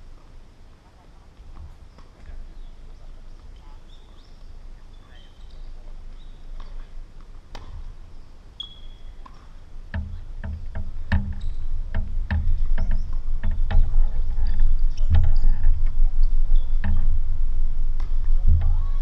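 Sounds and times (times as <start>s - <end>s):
faint bird chirps: 1.8s - 6.9s, 8.0s - 9.6s, 12.6s - 17.2s
tennis ball hits: 7.5s - 8.0s, 9.2s - 13.9s.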